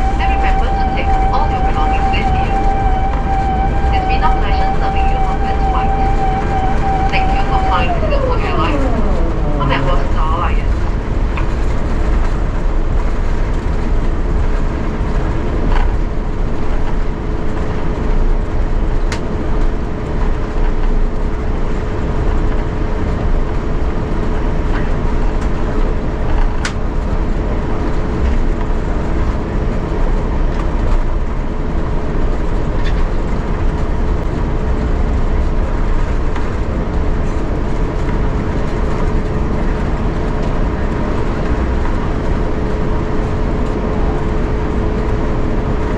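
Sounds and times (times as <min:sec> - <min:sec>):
mid-pitched hum: 0:00.0 - 0:13.4
aircraft cabin rumble: 0:00.0 - 0:45.9.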